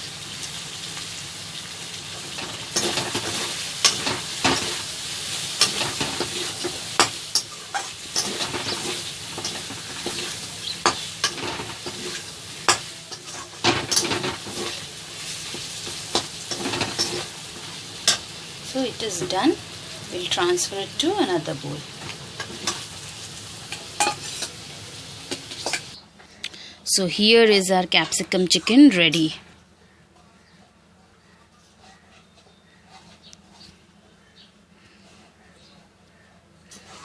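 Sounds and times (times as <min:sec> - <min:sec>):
food sizzling in a pan: 0:00.0 - 0:26.0
spatula scraping a pan: 0:05.5 - 0:18.2, 0:23.7 - 0:24.6, 0:36.7 - 0:37.0.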